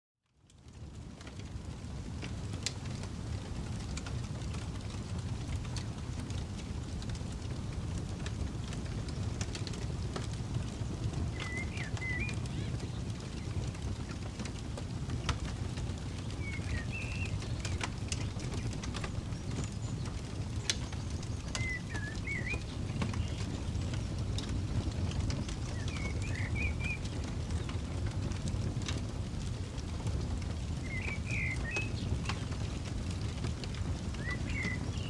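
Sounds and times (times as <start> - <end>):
campfire crackling and popping: 0.3 - 35.0
steady low rumble: 0.8 - 34.6
bird chirping: 11.4 - 12.8, 16.3 - 23.8, 25.4 - 27.7, 30.8 - 32.4, 34.2 - 35.0.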